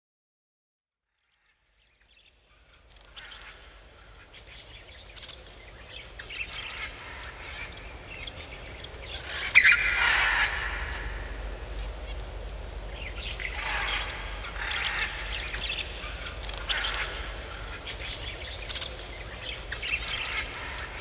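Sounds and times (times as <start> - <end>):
birds chirping: 3.0 - 21.0
low rumble: 9.2 - 21.0.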